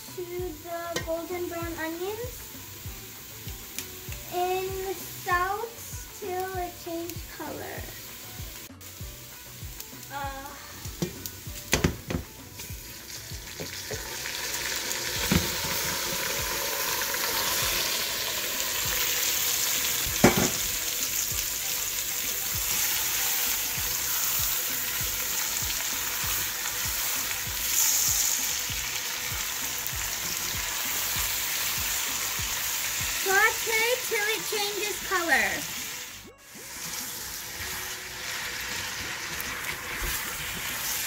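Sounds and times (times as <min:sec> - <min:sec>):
chicken sizzling in hot oil: 0:00.0 - 0:41.0
knocks in a metal pot: 0:11.0 - 0:12.3, 0:20.2 - 0:20.6.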